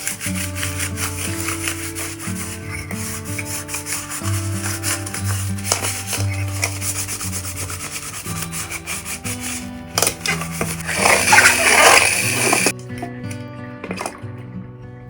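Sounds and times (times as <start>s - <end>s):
hand scrubbing a surface: 0.0s - 12.7s
soft background music: 0.0s - 15.0s.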